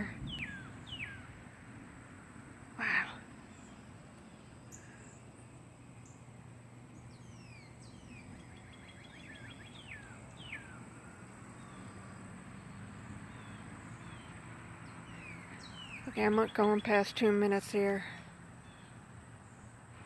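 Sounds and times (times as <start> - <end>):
birds chirping: 0.0 - 20.0
faint low background hum: 0.0 - 20.0
bird trill: 0.3 - 1.3, 7.0 - 12.0.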